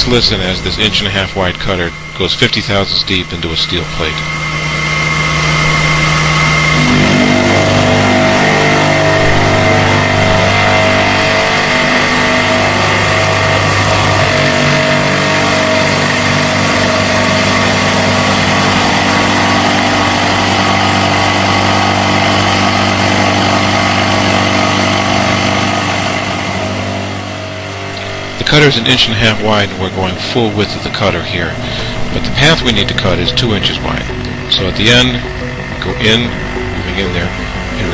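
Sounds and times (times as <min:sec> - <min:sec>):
face mill cutting steel: 0:00.0 - 0:37.9.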